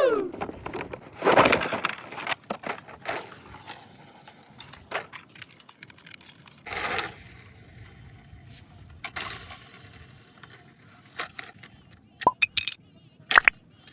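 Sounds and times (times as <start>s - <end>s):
toy packaging clicks and crinkles: 4.7s - 7.1s, 11.2s - 13.9s.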